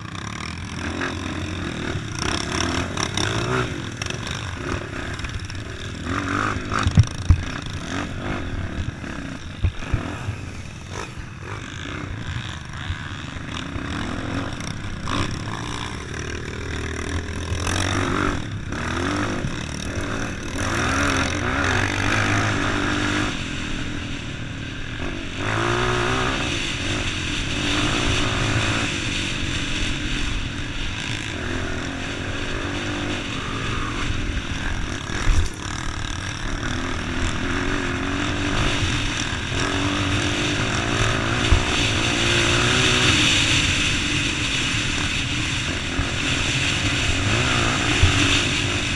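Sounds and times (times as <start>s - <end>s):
vehicle engine running: 0.0s - 28.3s.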